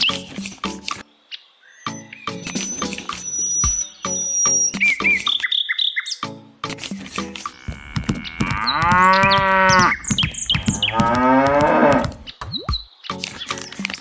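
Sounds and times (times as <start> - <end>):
cow mooing: 7.5 - 12.3.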